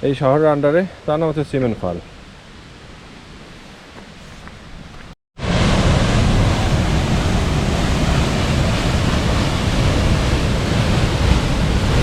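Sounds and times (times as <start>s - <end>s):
faint outdoor ambience: 0.0s - 5.2s
waterfall rushing: 5.4s - 12.0s.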